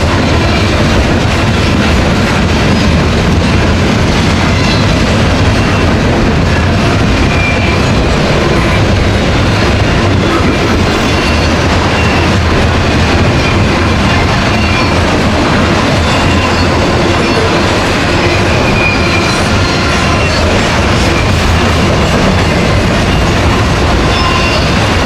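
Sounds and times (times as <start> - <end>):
train wheels rumbling on rail: 0.0 - 25.0
high wheel squeals: 18.3 - 20.5.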